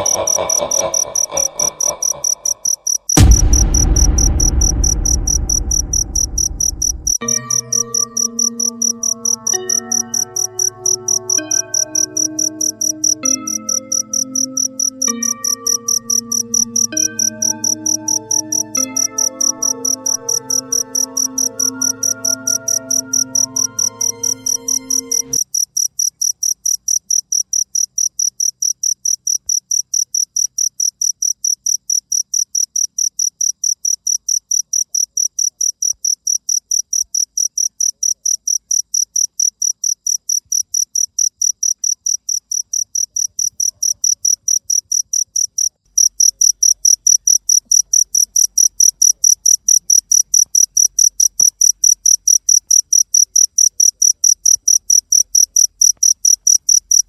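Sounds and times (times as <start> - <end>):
cricket chirping: 25.3 - 57.0.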